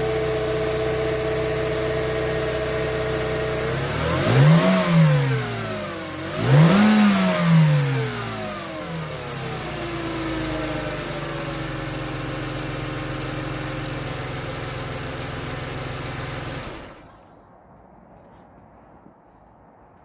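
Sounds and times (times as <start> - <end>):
car engine idling: 0.0 - 17.3.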